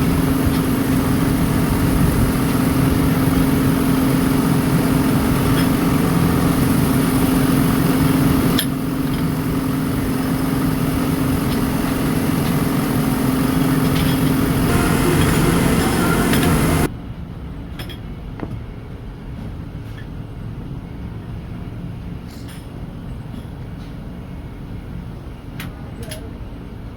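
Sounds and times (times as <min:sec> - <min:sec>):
workshop machinery humming: 0:00.0 - 0:16.9.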